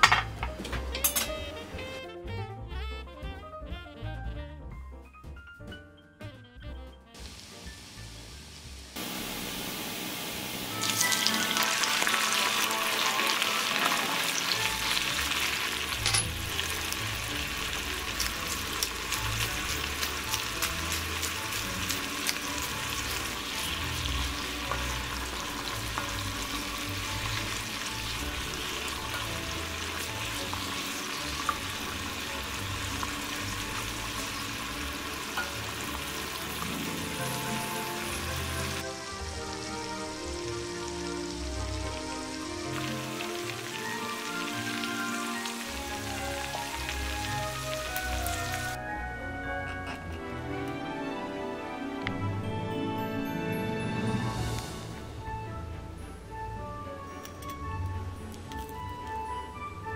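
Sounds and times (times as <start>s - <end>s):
shrimp sizzling in hot oil: 7.2s - 48.8s.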